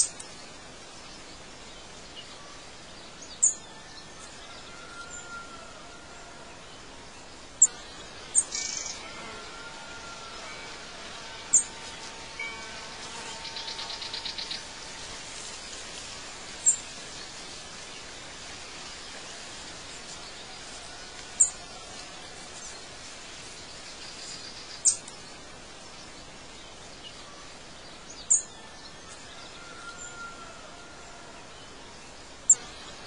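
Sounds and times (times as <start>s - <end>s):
background hiss: 0.0s - 33.0s
bird trill: 7.6s - 9.1s, 11.5s - 11.7s.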